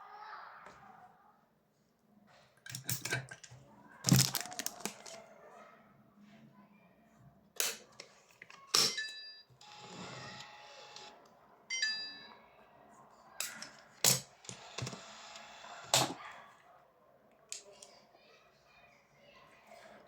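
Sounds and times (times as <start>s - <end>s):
small motor whir: 9.6s - 11.1s, 14.5s - 16.0s.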